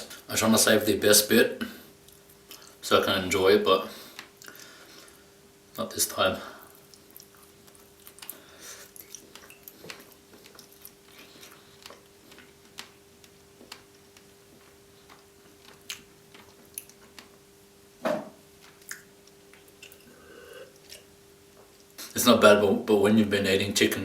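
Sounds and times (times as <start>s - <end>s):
person chewing with mouth clicks: 2.0s - 2.8s, 6.6s - 17.5s, 18.6s - 22.2s.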